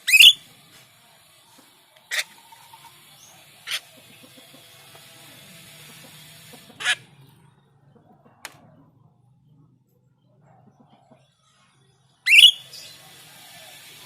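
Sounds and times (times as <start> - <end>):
starling short sharp calls: 0.0 - 0.6, 1.5 - 7.1, 12.2 - 14.0.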